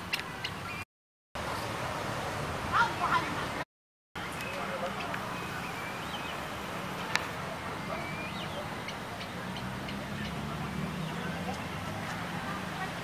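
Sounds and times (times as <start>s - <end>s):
distant traffic hum: 0.0s - 0.8s, 1.4s - 3.6s, 4.2s - 13.0s
bird chirps: 0.1s - 0.8s, 4.3s - 6.5s, 7.6s - 11.7s.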